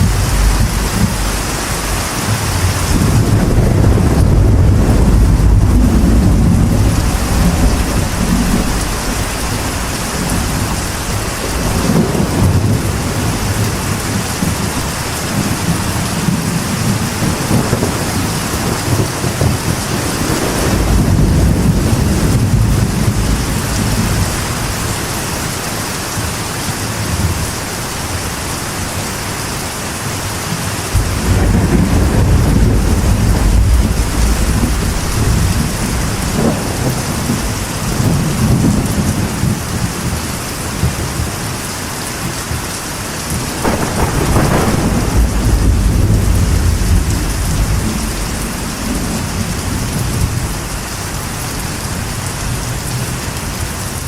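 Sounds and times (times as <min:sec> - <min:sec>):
thunder rumbling: 0:00.0 - 0:26.4, 0:30.2 - 0:54.0
rain drumming on a metal roof: 0:00.0 - 0:54.0.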